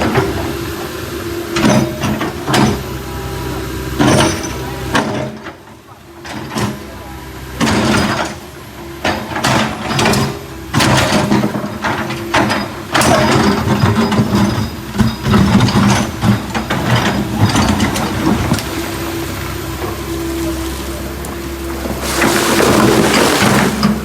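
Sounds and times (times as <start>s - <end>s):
backhoe engine running: 0.0s - 24.0s.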